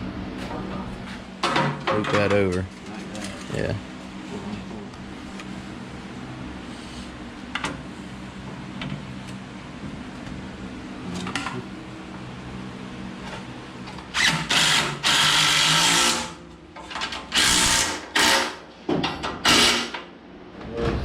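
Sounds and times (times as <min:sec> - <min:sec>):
power drill bursts: 0:14.2 - 0:16.3, 0:17.3 - 0:18.6, 0:19.4 - 0:19.9.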